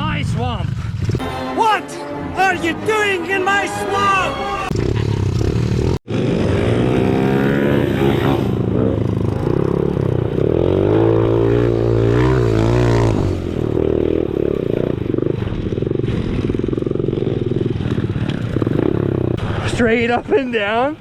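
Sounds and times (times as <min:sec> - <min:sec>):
pit bike engine revving: 0:04.7 - 0:19.7.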